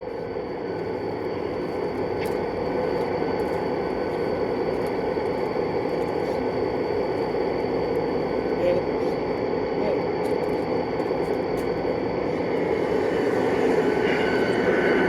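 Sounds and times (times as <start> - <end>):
faint high whine: 0.0 - 15.0
model train running: 9.7 - 15.0.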